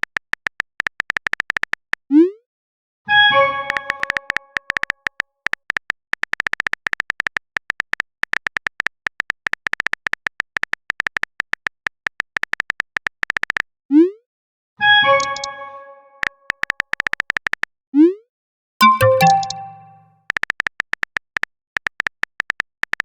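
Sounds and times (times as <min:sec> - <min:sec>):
keyboard typing clicks: 0:03.7 - 0:06.5, 0:18.8 - 0:20.0
electronic message chime: 0:18.8 - 0:20.0.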